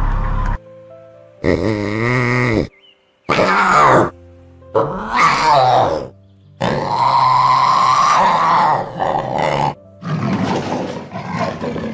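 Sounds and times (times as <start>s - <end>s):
big cat roaring and growling: 3.3s - 4.2s, 4.8s - 11.9s.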